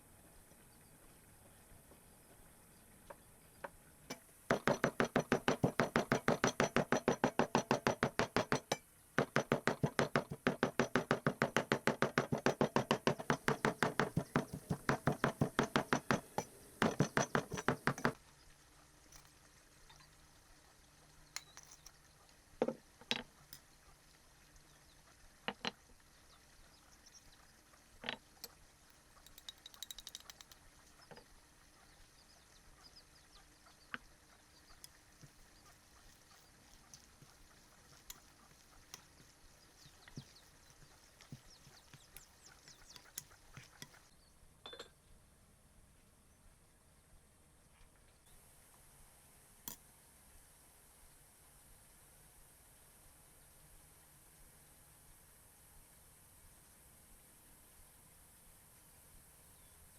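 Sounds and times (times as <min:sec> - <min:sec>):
knife chopping on cutting board: 0:04.5 - 0:18.2
scattered knocks: 0:04.5 - 0:18.2.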